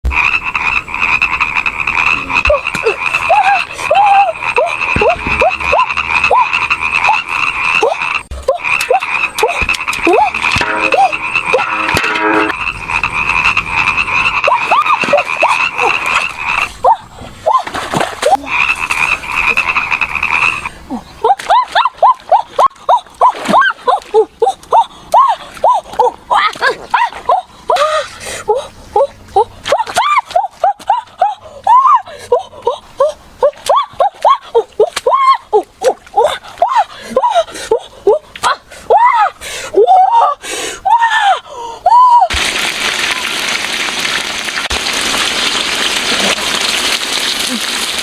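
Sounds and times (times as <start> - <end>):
frogs croaking: 0.1 - 17.1, 17.9 - 21.2
high-pitched trill: 10.6 - 12.6.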